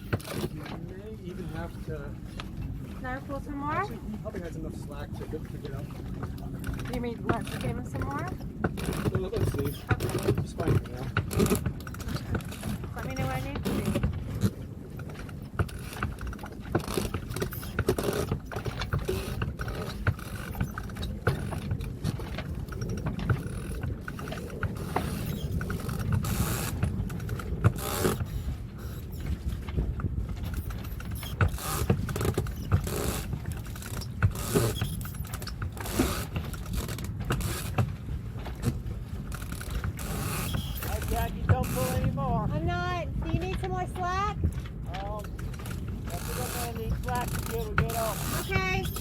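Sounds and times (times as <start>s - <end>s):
steady low rumble: 0.0s - 49.0s
winch clicking: 5.7s - 29.7s, 30.4s - 37.9s, 38.6s - 42.2s, 45.0s - 49.0s.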